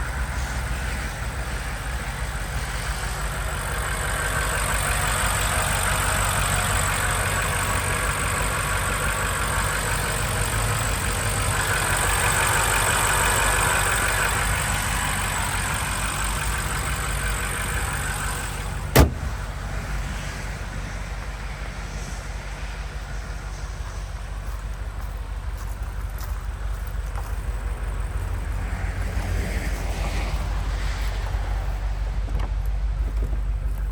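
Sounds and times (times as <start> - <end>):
car engine running: 1.2 - 21.8.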